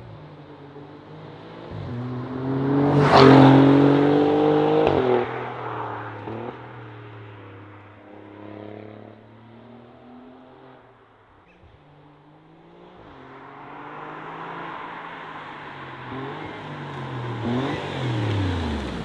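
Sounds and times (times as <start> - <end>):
car engine accelerating past: 1.2 - 10.8.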